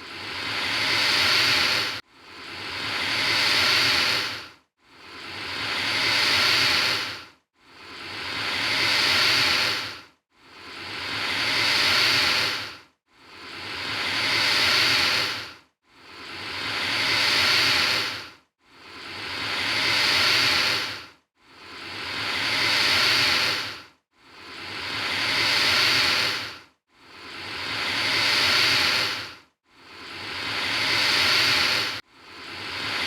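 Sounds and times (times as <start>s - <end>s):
alligator hissing: 0.1s - 2.0s, 2.6s - 4.4s, 5.1s - 7.2s, 7.9s - 10.0s, 10.7s - 12.7s, 13.4s - 15.5s, 16.2s - 18.2s, 18.9s - 21.0s, 21.7s - 23.8s, 24.4s - 26.6s, 27.2s - 29.3s, 29.9s - 33.0s.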